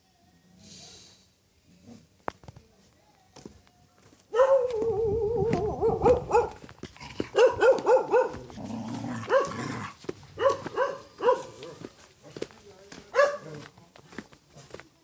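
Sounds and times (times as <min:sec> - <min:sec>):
dog barking sharply: 0:04.4 - 0:04.8, 0:05.8 - 0:06.6, 0:07.3 - 0:08.4, 0:09.3 - 0:09.6, 0:10.4 - 0:11.8, 0:13.2 - 0:13.5.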